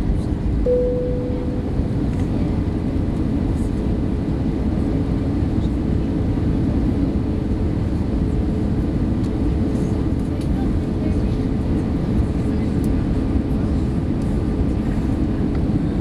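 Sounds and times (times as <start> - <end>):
faint steady hum: 0.6 - 2.5.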